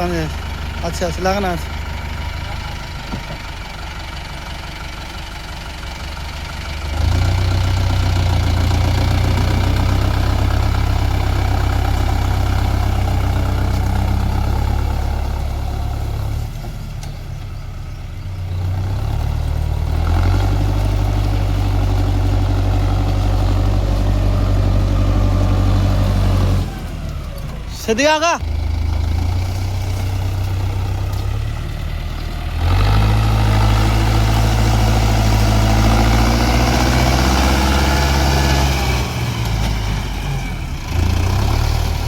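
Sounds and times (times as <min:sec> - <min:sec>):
tractor diesel engine revving: 0:00.0 - 0:42.0.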